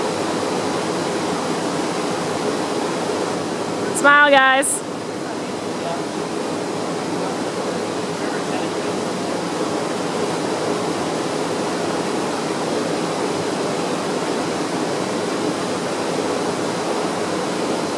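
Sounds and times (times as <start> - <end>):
river rushing at a waterfall: 0.0 - 17.9.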